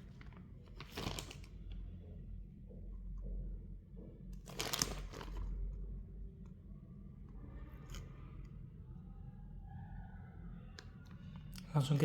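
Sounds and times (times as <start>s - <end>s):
rustling handling noise: 0.0s - 1.7s, 4.4s - 5.6s
low steady hum: 0.0s - 12.0s.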